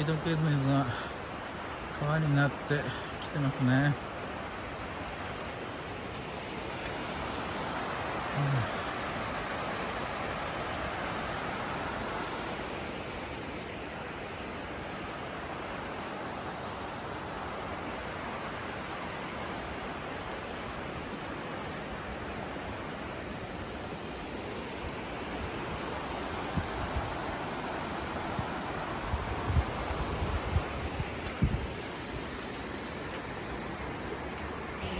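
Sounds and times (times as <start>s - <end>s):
river rushing through rocky gorge: 5.7s - 29.5s.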